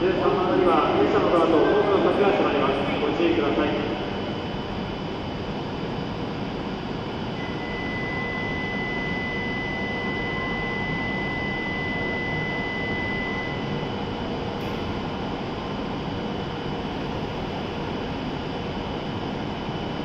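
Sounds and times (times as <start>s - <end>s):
train equipment humming and hissing: 0.0s - 20.0s
steady high tone: 7.3s - 15.7s.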